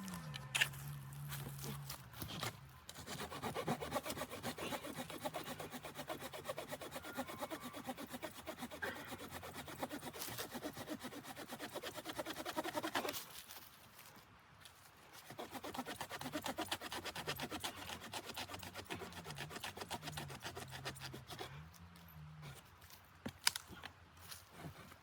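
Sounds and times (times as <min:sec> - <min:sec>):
hand saw cutting wood: 0:01.6 - 0:13.3, 0:15.2 - 0:21.7.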